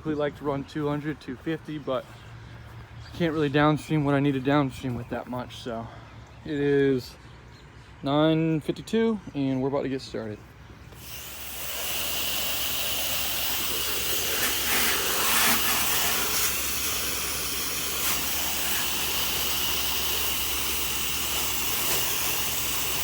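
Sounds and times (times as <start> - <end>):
pressure washer engine running: 10.9 - 23.0
pressure washer spray hissing: 10.9 - 23.0.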